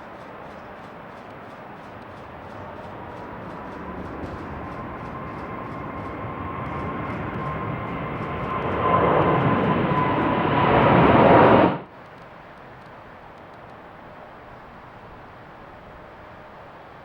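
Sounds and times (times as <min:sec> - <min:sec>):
jet airliner engines roaring: 0:00.0 - 0:11.9.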